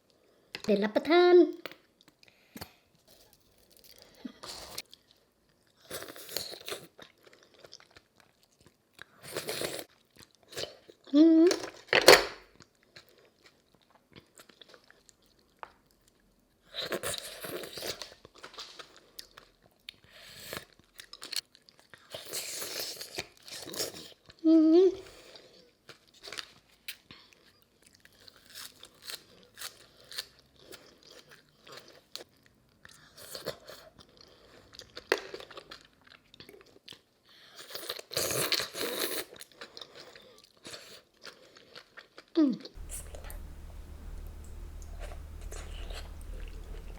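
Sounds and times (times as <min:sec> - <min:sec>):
person chewing crunchy food: 0:03.1 - 0:11.0, 0:25.2 - 0:46.9.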